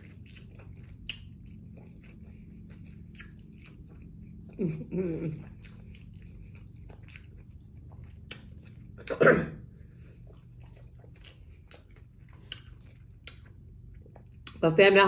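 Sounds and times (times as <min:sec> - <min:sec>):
chewing mouth sounds: 0:00.0 - 0:09.2, 0:09.8 - 0:14.6.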